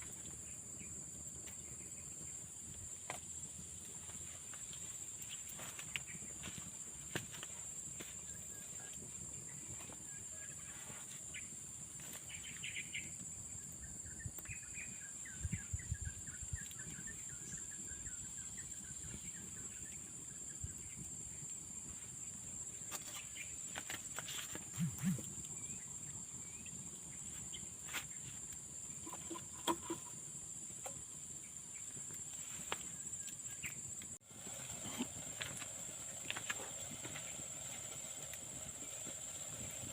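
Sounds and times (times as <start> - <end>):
small birds chirping: 3.4 - 21.6.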